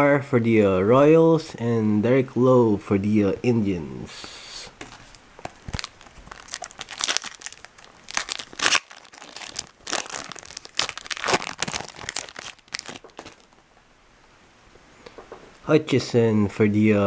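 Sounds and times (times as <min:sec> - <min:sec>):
foil wrapper crinkling and tearing: 0:05.0 - 0:13.6.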